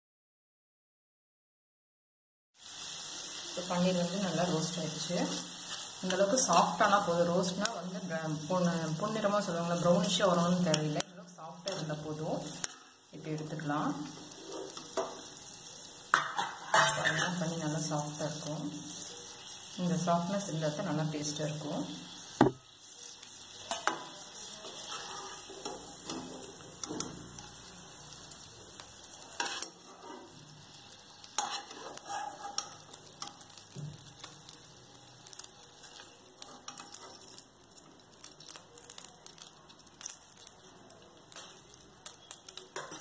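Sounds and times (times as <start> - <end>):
oil sizzling in a pan: 2.6 - 43.0
spatula scraping a pan: 14.2 - 15.2, 16.1 - 17.5, 22.9 - 27.6, 29.1 - 33.5.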